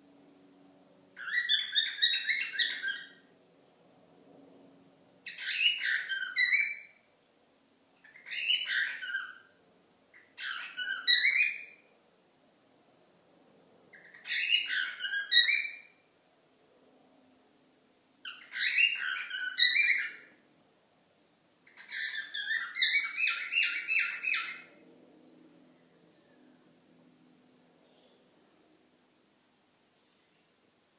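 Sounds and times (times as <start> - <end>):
cockatiel chirping and whistling: 1.2 - 3.2, 5.3 - 6.9, 8.0 - 9.5, 10.3 - 11.8, 14.0 - 15.9, 18.3 - 20.3, 21.7 - 24.7.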